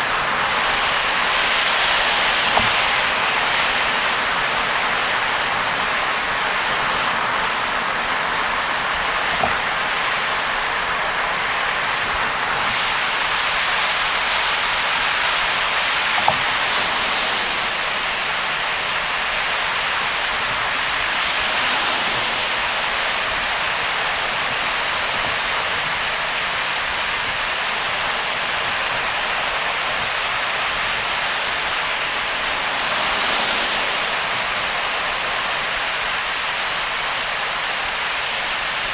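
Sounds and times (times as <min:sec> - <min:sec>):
heavy rain on a car: 0:00.0 - 0:38.9
tyre hiss on wet road: 0:00.0 - 0:38.9.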